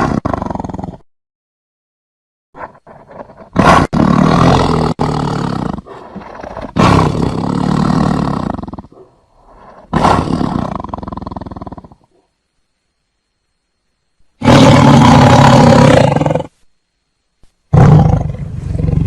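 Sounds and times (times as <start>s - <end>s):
tiger roaring: 2.6s - 12.2s, 14.4s - 16.6s, 17.7s - 19.0s.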